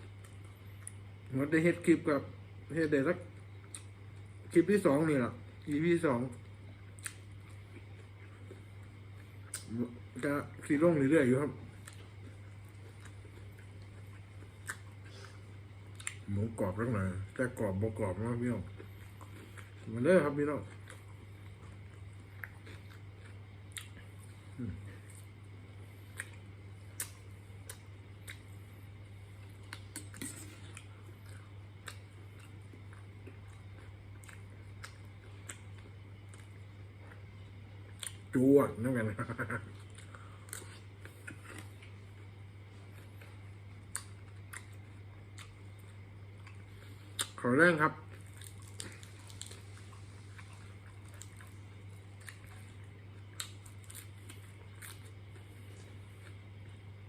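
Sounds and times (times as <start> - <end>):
steady low hum: 0.0 - 57.0
person chewing crispy food: 6.8 - 9.9, 11.4 - 16.6, 17.9 - 38.4, 39.0 - 57.0.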